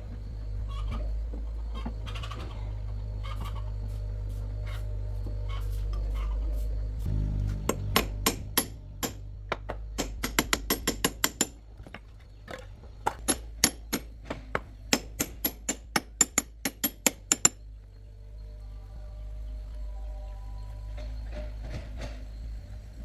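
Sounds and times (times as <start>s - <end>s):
steady low hum: 0.0s - 23.0s
sharp taps or knocks: 7.5s - 11.5s.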